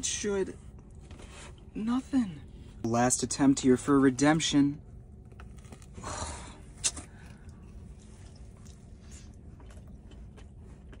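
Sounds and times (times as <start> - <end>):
low background rumble: 0.0 - 11.0
faint chewing: 6.7 - 11.0.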